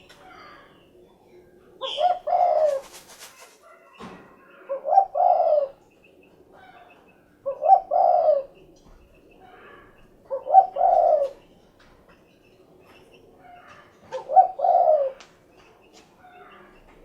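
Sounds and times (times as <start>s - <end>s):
dove cooing: 0.0s - 3.5s, 4.3s - 5.8s, 6.5s - 11.5s, 13.5s - 15.3s.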